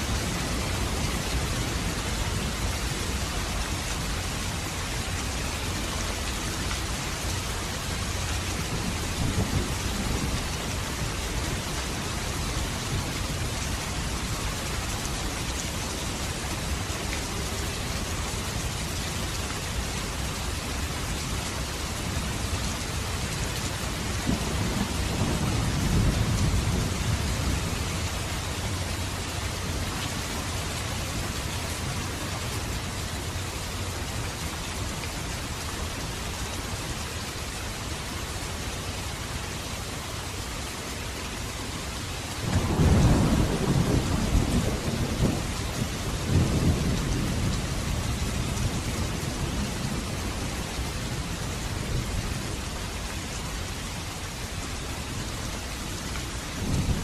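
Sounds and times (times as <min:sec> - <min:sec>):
low rumbles of thunder: 0:00.0 - 0:19.0, 0:21.6 - 0:30.1, 0:42.4 - 0:52.6, 0:56.4 - 0:57.0
heavy rain falling: 0:00.0 - 0:57.0.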